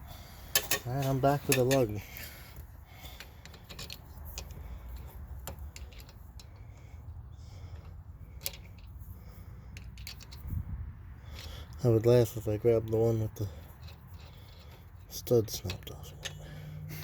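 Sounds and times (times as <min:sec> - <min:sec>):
metallic clicks of lug nut: 0:00.5 - 0:07.0, 0:07.7 - 0:09.0, 0:09.7 - 0:10.5, 0:13.6 - 0:16.6.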